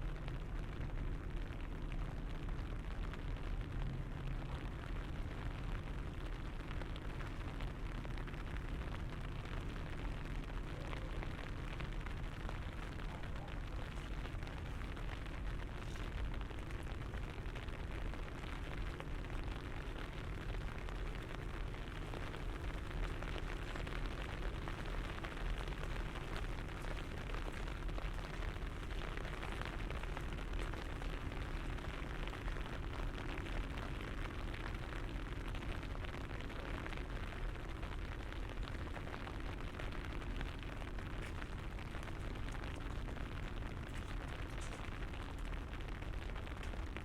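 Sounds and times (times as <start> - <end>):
rain tapping on an umbrella: 0.0 - 47.0.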